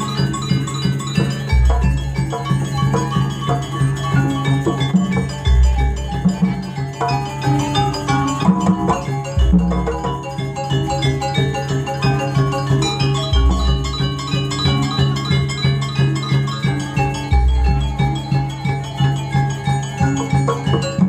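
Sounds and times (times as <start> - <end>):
metallophones ringing: 0.0 - 21.0.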